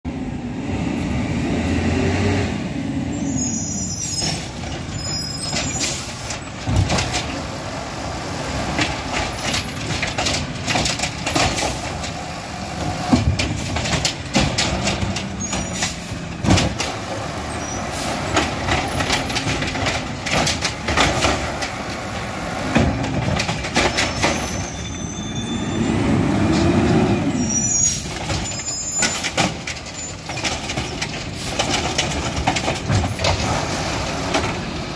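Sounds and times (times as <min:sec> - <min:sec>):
garbage truck engine revving: 0:04.3 - 0:24.6, 0:25.5 - 0:28.4, 0:29.1 - 0:34.9
sharp clanks and bangs: 0:13.0 - 0:17.2.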